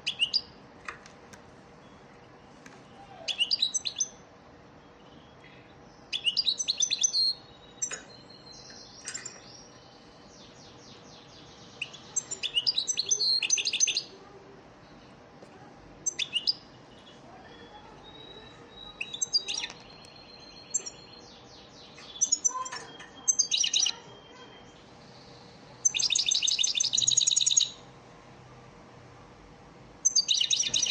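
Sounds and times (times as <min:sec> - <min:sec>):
goldfinch twittering song: 0:18.1 - 0:24.6, 0:30.0 - 0:30.9.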